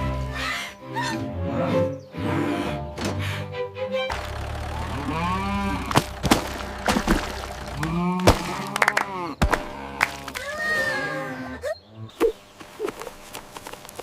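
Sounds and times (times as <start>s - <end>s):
low steady rumble: 4.1s - 10.4s
cows mooing: 4.1s - 12.1s
sharp knocks: 5.8s - 8.7s.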